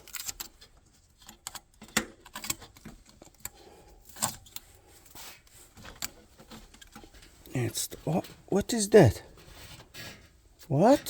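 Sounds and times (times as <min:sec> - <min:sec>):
small clicks and rattles of wiring: 0:00.0 - 0:07.5.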